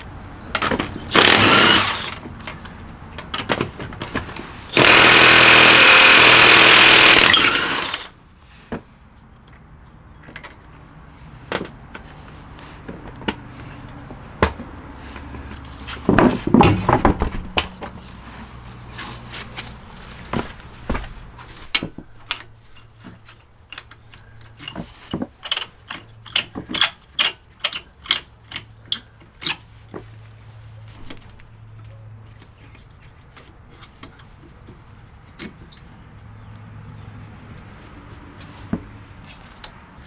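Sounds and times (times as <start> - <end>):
tools clicking and clattering: 0.5 - 8.2, 20.4 - 29.7
small power tool running: 1.1 - 2.2, 4.7 - 8.1.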